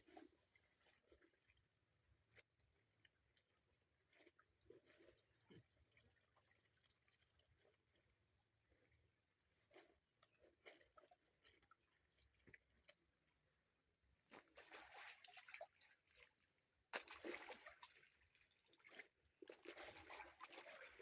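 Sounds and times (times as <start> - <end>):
water sloshing and trickling: 4.1 - 8.0, 14.3 - 21.0.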